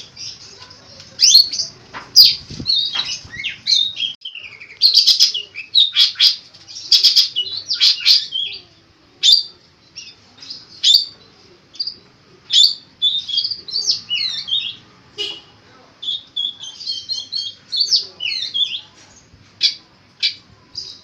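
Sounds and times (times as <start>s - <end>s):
bird singing harsh chattering notes: 0.0s - 8.6s, 9.2s - 15.3s, 16.0s - 18.9s.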